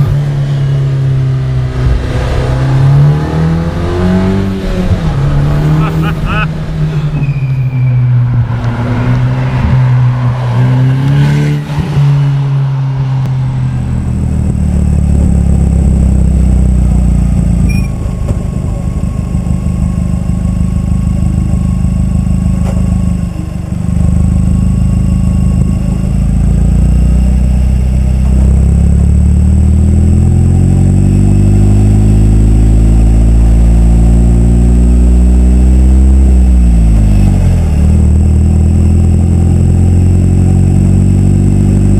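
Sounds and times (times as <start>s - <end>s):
car engine under load: 0.0s - 41.9s.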